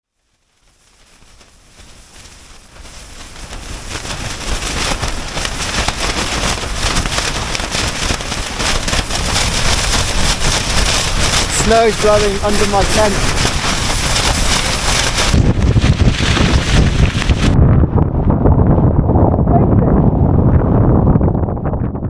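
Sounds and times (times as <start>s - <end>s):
snow crackling against tent: 0.0s - 17.6s
low wind rumble: 1.2s - 22.0s.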